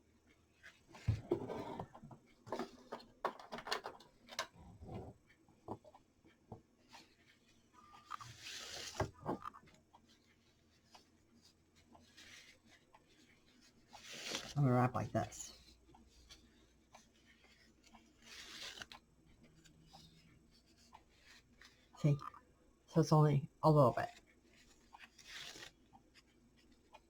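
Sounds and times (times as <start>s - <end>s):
ribbon rustling: 24.1s - 27.0s.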